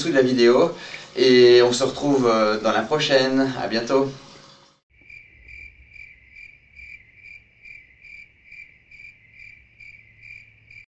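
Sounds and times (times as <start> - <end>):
continuous insect trill: 4.9 - 10.9
insect chirping: 4.9 - 10.9.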